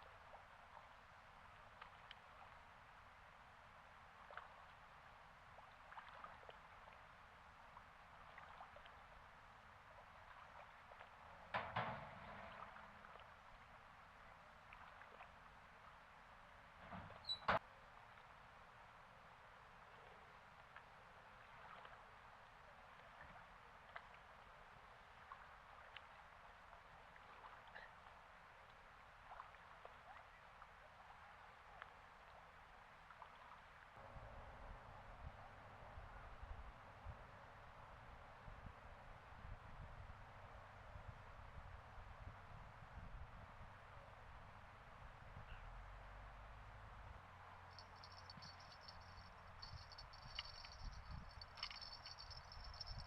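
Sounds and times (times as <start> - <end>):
faint water lapping: 0.0 - 17.3, 19.4 - 34.1
small splashes: 5.5 - 7.0, 8.1 - 9.0
faint steady hiss: 46.0 - 53.0
low wind rumble: 46.7 - 53.0
small ticks and clicks: 47.7 - 53.0.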